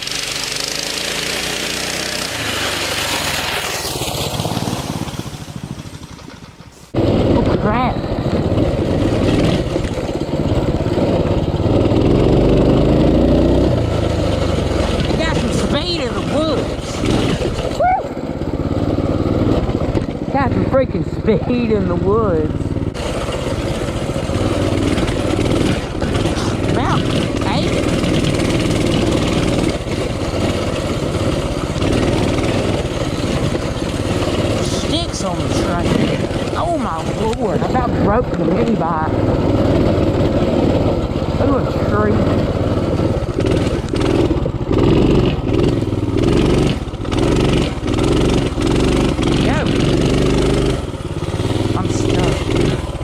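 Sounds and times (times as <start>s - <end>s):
small motorbike engine running: 0.0s - 53.0s.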